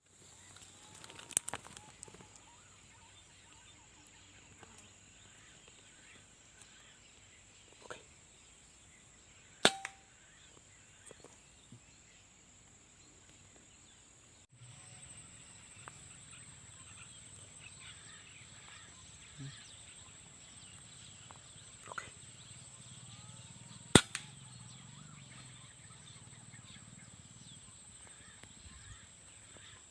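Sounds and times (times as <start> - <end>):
sharp shot-like cracks: 9.6 - 10.0, 23.9 - 24.4.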